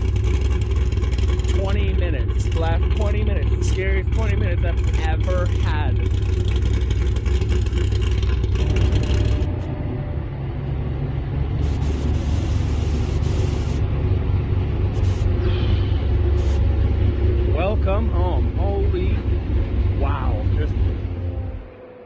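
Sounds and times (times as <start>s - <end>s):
car engine low rumble: 0.0s - 22.0s.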